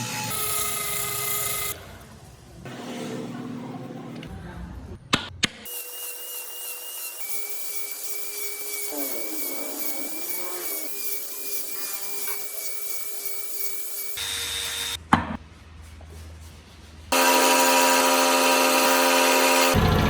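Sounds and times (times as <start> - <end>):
power tool whining against wood: 17.1 - 20.0.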